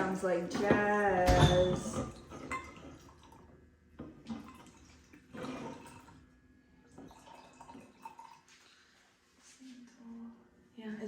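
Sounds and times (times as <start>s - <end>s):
liquor pouring into cup: 2.2s - 9.1s.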